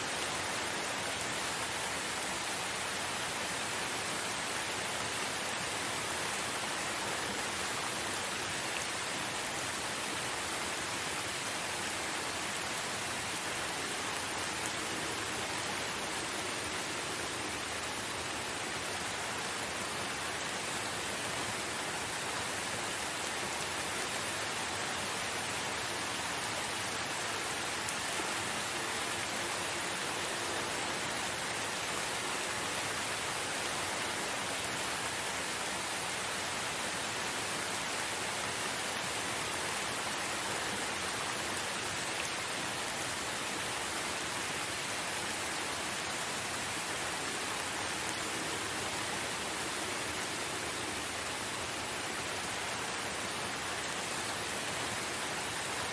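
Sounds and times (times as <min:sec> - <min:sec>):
steady rain hiss: 0:00.0 - 0:55.9.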